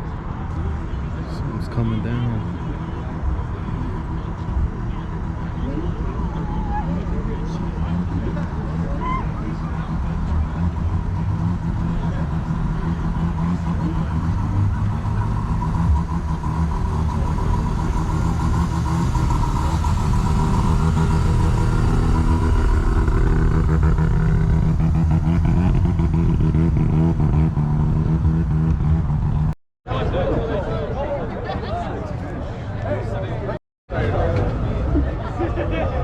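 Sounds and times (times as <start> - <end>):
car engine running: 0.8 - 29.6.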